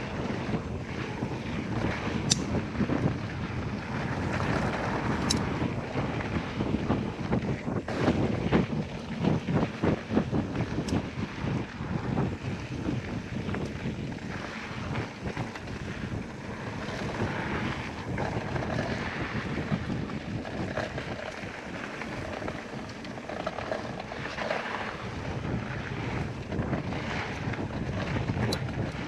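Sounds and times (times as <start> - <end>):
bike clicks and rattles: 0.0 - 29.0
wind buffeting microphone: 0.0 - 29.0
tyres rolling on dirt: 14.1 - 29.0.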